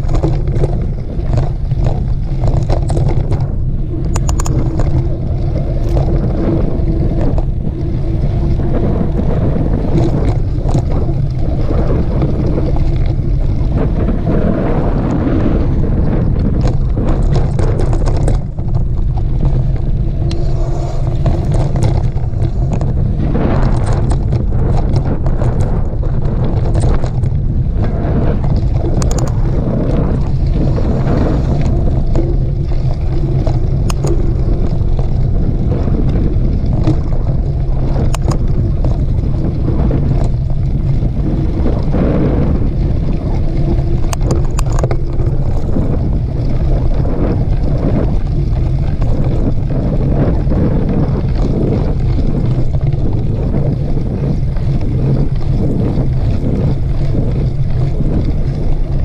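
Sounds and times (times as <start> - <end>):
bike clicks and rattles: 0.0 - 59.0
wind buffeting microphone: 0.0 - 59.0.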